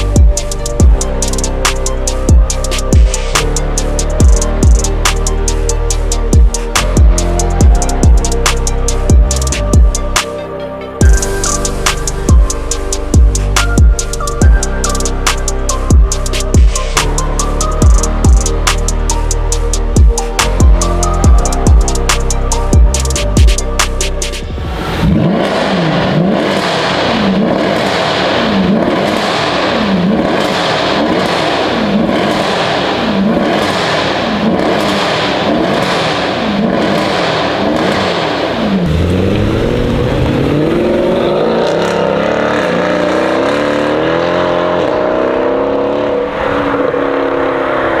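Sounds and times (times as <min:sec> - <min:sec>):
car engine revving: 0:11.0 - 0:48.0.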